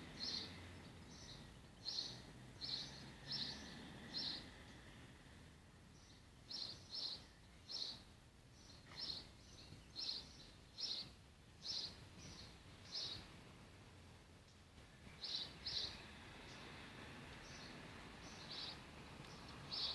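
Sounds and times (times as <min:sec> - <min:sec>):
faint garden background noise: 0:00.0 - 0:19.9
small bird chirping: 0:00.2 - 0:04.6, 0:06.0 - 0:13.3, 0:15.1 - 0:16.7, 0:17.4 - 0:19.9.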